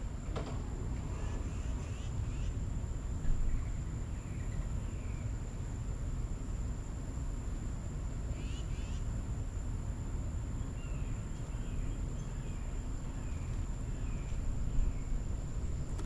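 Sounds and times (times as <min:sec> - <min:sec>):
low outdoor rumble: 0:00.0 - 0:16.0
small birds chirping: 0:10.6 - 0:15.3.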